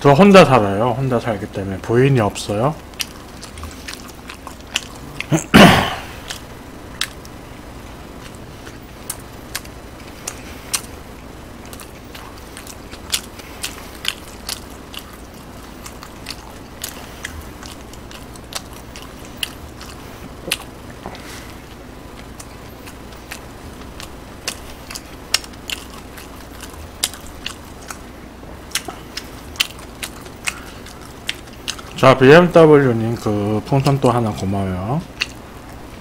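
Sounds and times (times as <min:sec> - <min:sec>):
person chewing with wet mouth clicks: 0:02.8 - 0:05.5, 0:11.6 - 0:28.0, 0:28.6 - 0:32.0, 0:35.1 - 0:35.4.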